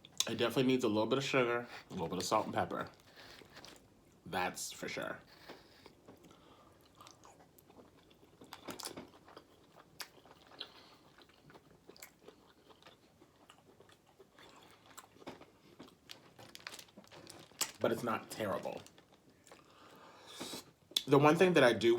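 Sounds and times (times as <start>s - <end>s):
person chewing food: 5.3s - 17.8s, 18.8s - 21.1s.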